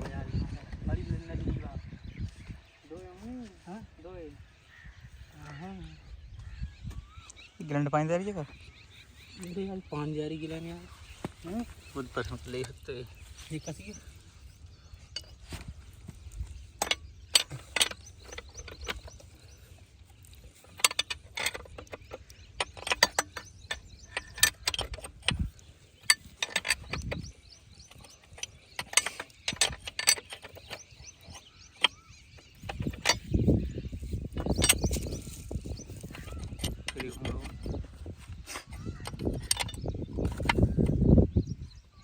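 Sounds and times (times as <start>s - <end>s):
metallic clicks and clinks: 16.8s - 37.8s.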